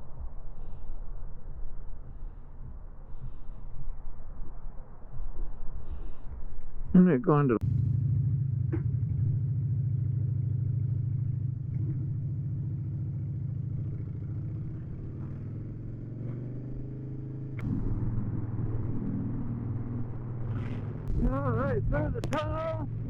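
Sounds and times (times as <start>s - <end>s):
motorcycle engine idling: 7.6s - 23.0s.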